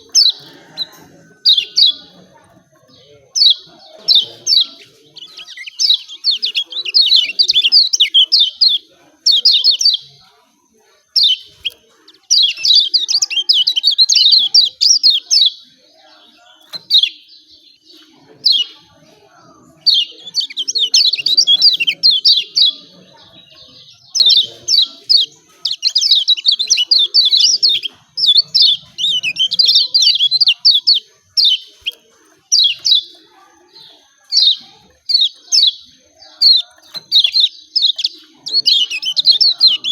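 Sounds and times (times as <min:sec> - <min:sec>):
bird high sharp chirps: 0:03.4 - 0:10.2, 0:16.7 - 0:18.8, 0:19.8 - 0:39.9.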